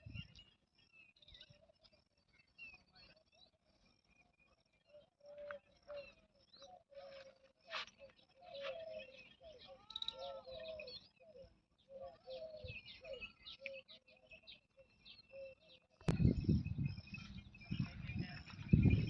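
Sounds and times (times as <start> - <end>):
small birds chirping: 0.0 - 19.0
doves cooing: 4.9 - 14.6.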